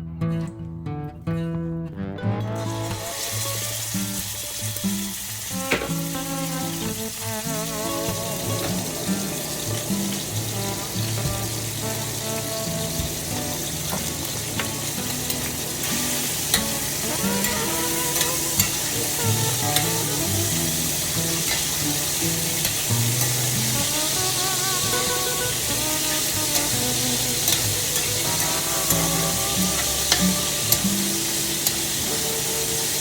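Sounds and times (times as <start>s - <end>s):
food sizzling in a wok: 2.6s - 33.0s
spatula scraping a pan: 6.0s - 32.9s.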